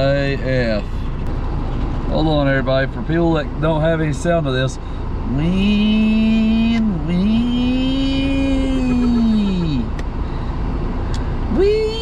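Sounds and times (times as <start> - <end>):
car engine revving: 0.0 - 12.0
wind and road noise: 0.0 - 12.0.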